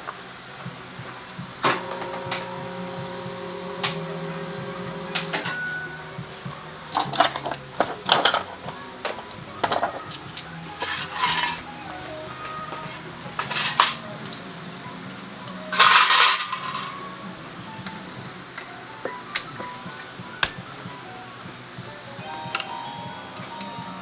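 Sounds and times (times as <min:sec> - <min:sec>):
steady mechanical hum: 0:00.0 - 0:24.0
metal tools clinking: 0:01.6 - 0:14.4, 0:15.7 - 0:17.2.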